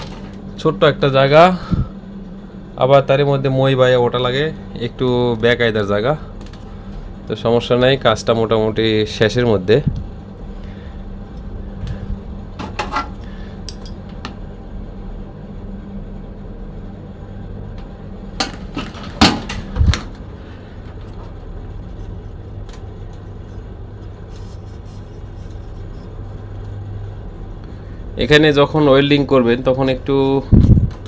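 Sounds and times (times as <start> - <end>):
compressor humming: 0.0 - 31.0.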